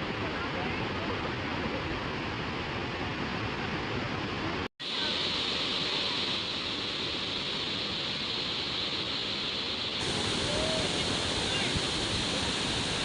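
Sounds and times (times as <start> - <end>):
waterfall rushing: 4.4 - 13.0.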